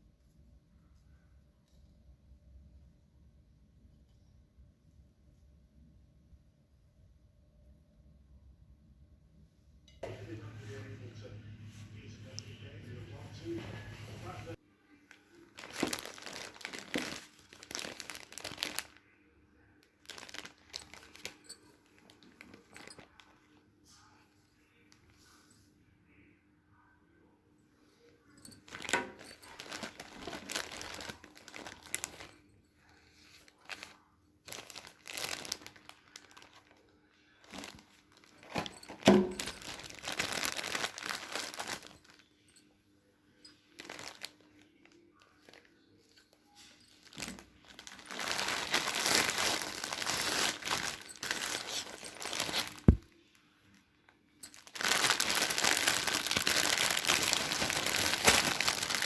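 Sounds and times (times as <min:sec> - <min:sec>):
crinkling and rustling handling noise: 0:10.1 - 0:25.8, 0:27.8 - 0:59.0.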